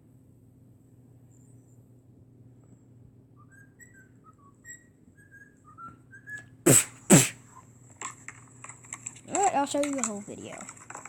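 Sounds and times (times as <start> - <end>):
faint bird chirps: 3.3 - 6.5.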